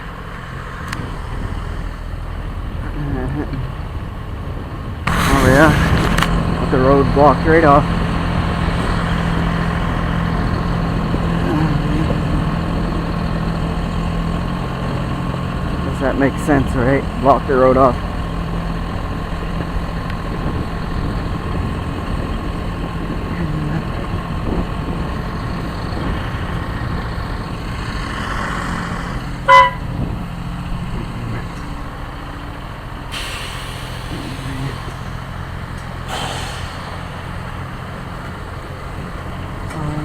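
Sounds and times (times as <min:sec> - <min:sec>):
vehicle engine idling: 0:00.0 - 0:40.0
horn toot: 0:28.4 - 0:30.0.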